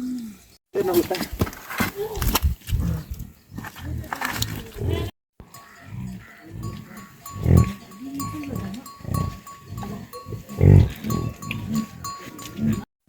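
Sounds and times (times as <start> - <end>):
farm animals calling: 2.9 - 12.9.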